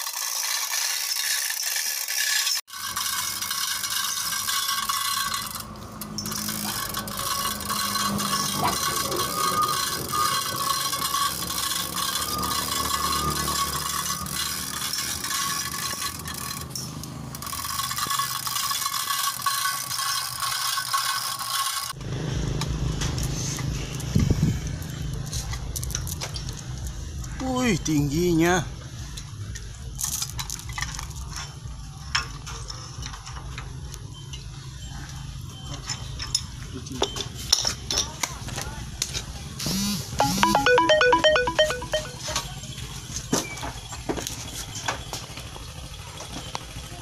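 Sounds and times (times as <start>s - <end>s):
ratchet clicking: 0.0s - 22.0s
steel chain rattling and scraping: 0.0s - 22.0s, 29.1s - 36.7s.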